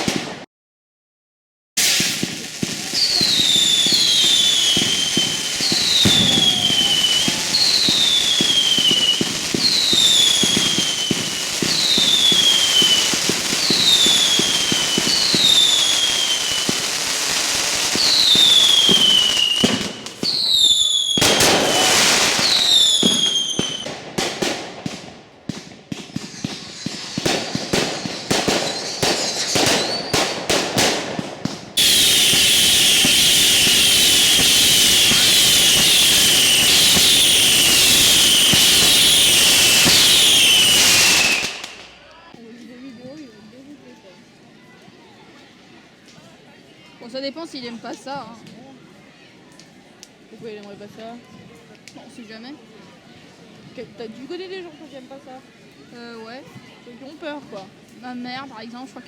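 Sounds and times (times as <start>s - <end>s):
whistling fireworks: 0.0s - 0.4s, 1.8s - 42.2s
fireworks bangs: 0.0s - 0.5s, 1.8s - 42.2s
fireworks crackling: 0.0s - 0.5s, 1.8s - 42.8s.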